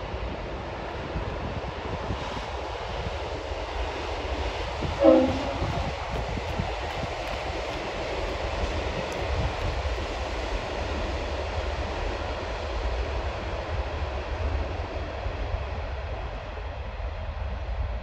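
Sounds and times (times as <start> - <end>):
distant train rumble: 0.0 - 13.7.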